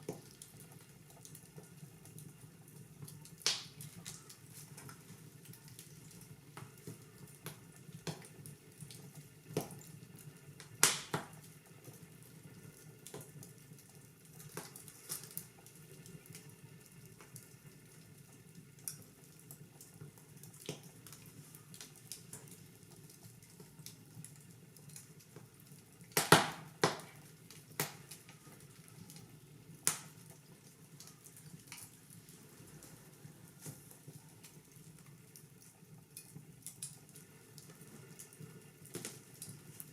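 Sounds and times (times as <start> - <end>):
fireplace fire crackling: 0.0 - 39.9
steady soft hiss: 0.0 - 39.9.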